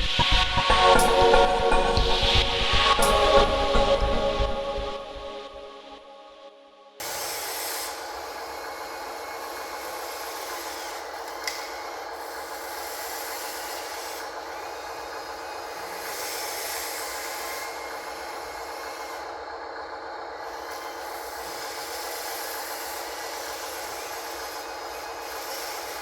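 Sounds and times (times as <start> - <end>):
sharp click: 11.4 - 11.7.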